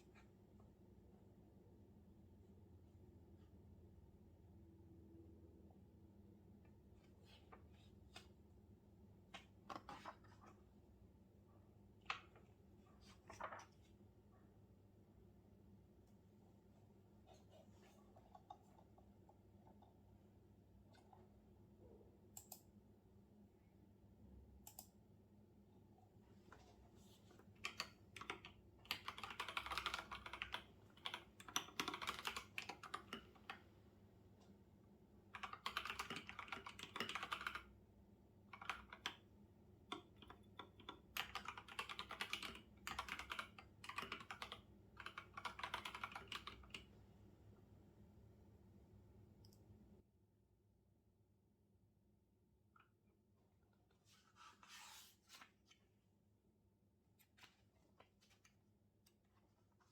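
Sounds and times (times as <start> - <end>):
faint keyboard typing: 9.2 - 10.8, 12.0 - 14.0, 17.2 - 20.1, 20.7 - 21.4, 22.3 - 22.8, 24.6 - 25.0, 26.4 - 34.6, 35.2 - 37.8, 38.4 - 47.1.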